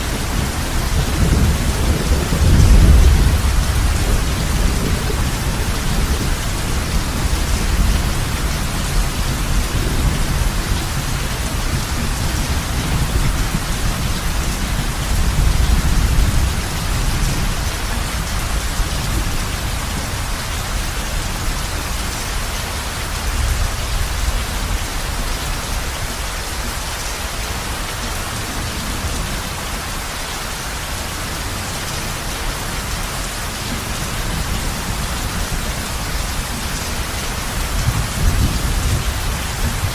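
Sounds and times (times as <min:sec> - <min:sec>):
low rolling thunder: 0:00.0 - 0:22.1, 0:33.2 - 0:39.9
heavy rain on a roof: 0:00.0 - 0:39.9.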